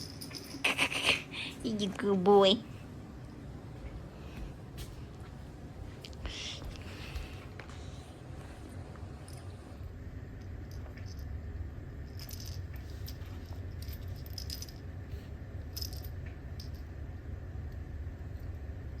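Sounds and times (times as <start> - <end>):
metallic jingling and rattling: 0.0 - 0.9, 12.0 - 14.9, 15.7 - 16.9
low hum: 0.0 - 19.0.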